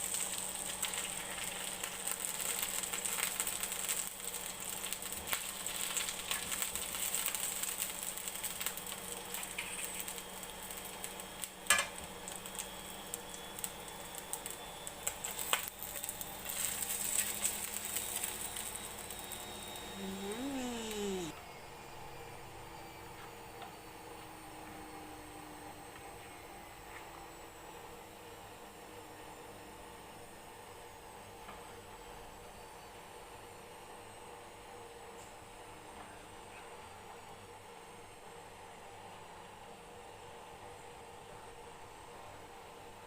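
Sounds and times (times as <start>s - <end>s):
chicken sizzling and crackling: 0.0s - 21.3s.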